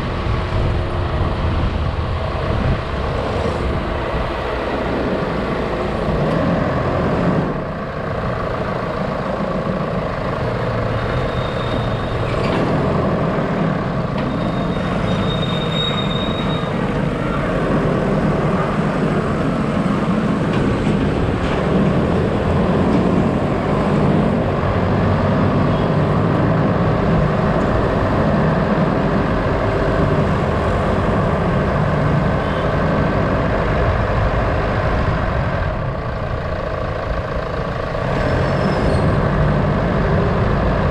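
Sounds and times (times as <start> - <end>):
vehicle engine and road noise: 0.0 - 40.9
brief high squeal: 11.2 - 12.3, 14.3 - 16.9.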